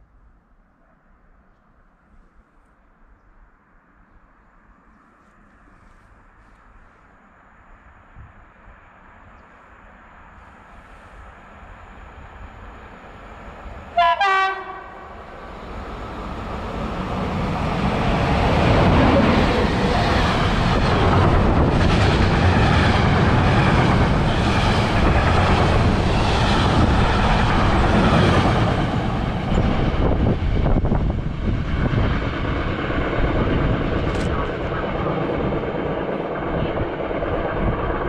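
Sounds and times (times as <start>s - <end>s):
freight train passing: 0.0s - 38.0s
locomotive horn blast: 13.9s - 15.1s.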